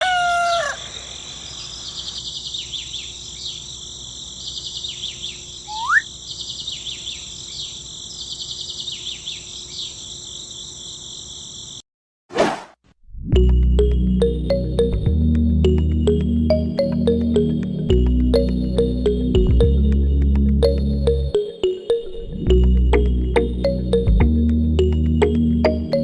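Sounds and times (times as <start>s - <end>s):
bird chirps: 0.0s - 11.5s
insects chirring: 0.0s - 11.8s
rising whistle: 5.7s - 6.1s.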